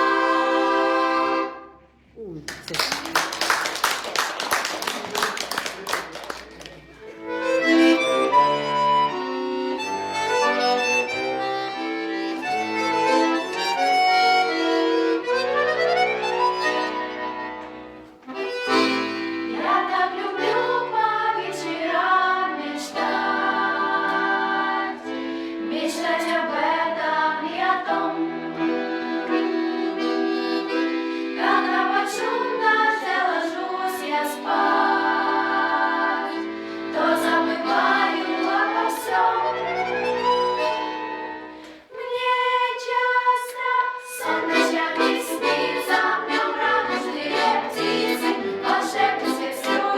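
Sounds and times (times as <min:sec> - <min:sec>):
instrumental accompaniment: 0:06.0 - 0:26.2, 0:27.8 - 0:41.9, 0:44.1 - 0:49.9
girls singing pop song: 0:31.4 - 0:36.3, 0:41.8 - 0:49.9.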